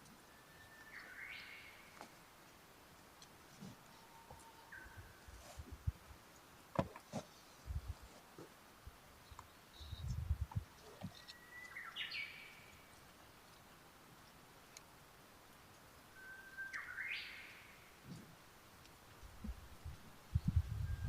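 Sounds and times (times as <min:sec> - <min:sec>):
bird whistling call: 0:11.2 - 0:12.4, 0:16.2 - 0:17.7.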